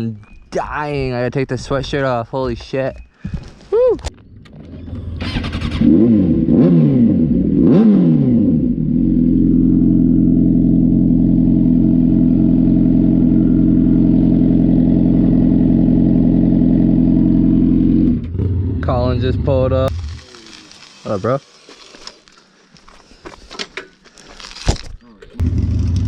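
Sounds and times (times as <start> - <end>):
motorcycle engine revving: 4.3 - 20.3, 25.4 - 26.0.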